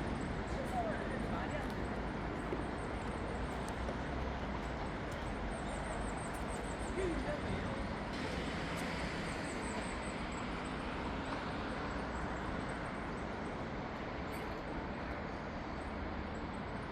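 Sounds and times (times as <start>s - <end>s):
distant city traffic hum: 0.0s - 16.9s.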